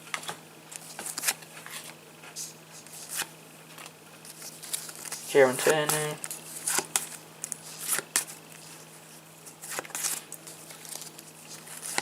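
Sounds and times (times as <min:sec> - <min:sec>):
trading cards rustling and flicking: 0:00.1 - 0:12.0.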